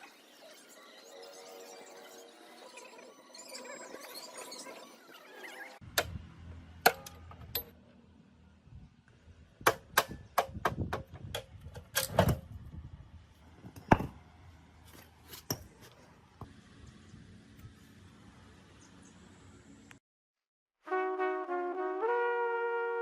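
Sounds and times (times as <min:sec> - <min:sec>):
sharp metallic taps and knocks: 0:06.8 - 0:07.8, 0:09.6 - 0:12.4.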